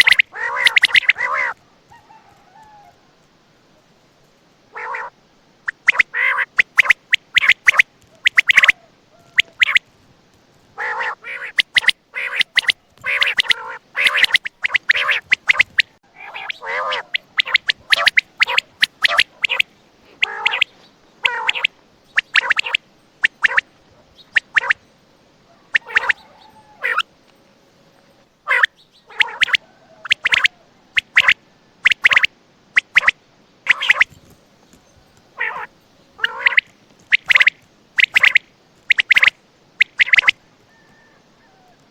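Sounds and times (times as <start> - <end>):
quail calling: 0.0 - 3.1, 4.7 - 9.9, 10.8 - 27.2, 28.4 - 41.9.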